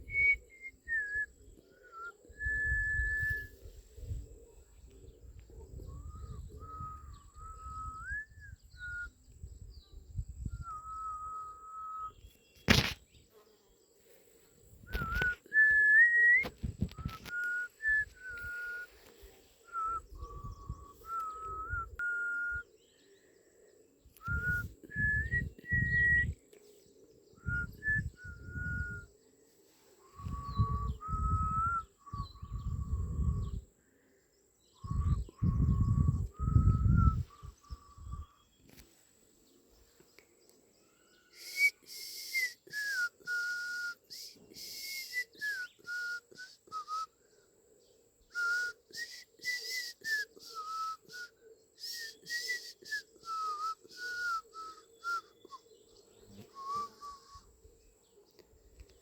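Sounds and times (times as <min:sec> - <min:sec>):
person whistling a tune: 0:00.0 - 0:01.3, 0:01.9 - 0:03.5, 0:06.2 - 0:09.1, 0:10.6 - 0:12.2, 0:14.9 - 0:18.9, 0:19.7 - 0:22.6, 0:24.2 - 0:26.4, 0:27.4 - 0:29.1, 0:30.2 - 0:33.5, 0:34.8 - 0:37.2, 0:41.4 - 0:47.1, 0:48.3 - 0:55.6, 0:56.6 - 0:57.4.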